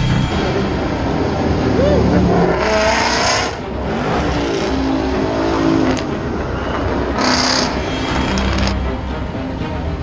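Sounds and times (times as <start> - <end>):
exhaust rush: 0.0 - 10.0
car engine revving loudly: 1.1 - 7.8.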